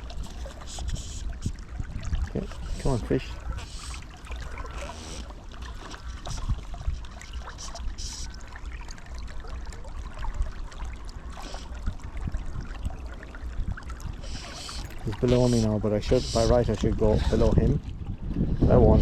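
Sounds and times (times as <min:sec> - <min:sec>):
river water flowing and lapping: 0:00.0 - 0:19.0
brief hissing bursts: 0:14.3 - 0:14.9.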